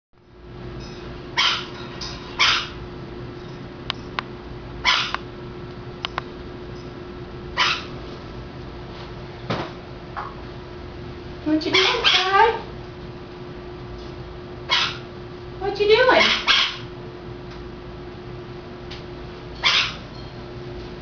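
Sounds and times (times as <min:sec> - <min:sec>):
steady low hum: 0:00.2 - 0:21.0
parrot squawking: 0:01.4 - 0:01.7, 0:02.4 - 0:02.8, 0:04.8 - 0:05.2, 0:07.6 - 0:07.9, 0:11.6 - 0:12.6, 0:14.7 - 0:15.0, 0:16.1 - 0:16.9, 0:19.6 - 0:20.0.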